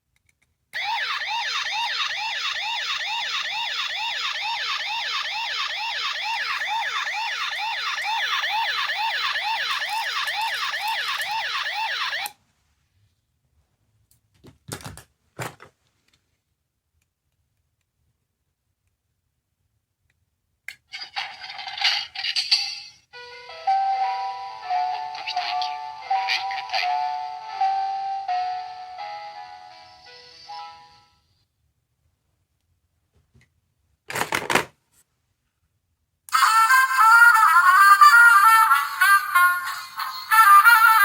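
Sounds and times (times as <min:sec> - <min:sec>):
electronic sound: 0:00.8 - 0:12.3
electronic toy siren whine: 0:00.8 - 0:12.4.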